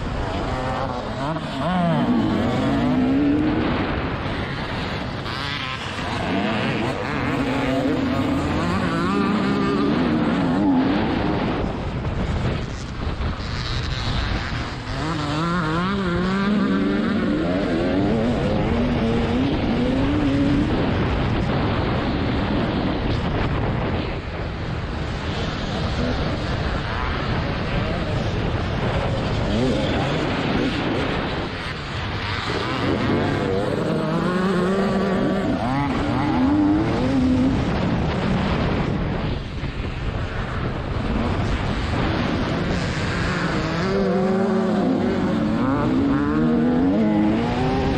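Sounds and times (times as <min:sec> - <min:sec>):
wind rush: 0:00.0 - 0:47.9
motocross engine revving: 0:00.1 - 0:11.6, 0:13.9 - 0:21.0, 0:28.9 - 0:37.8, 0:41.4 - 0:47.9.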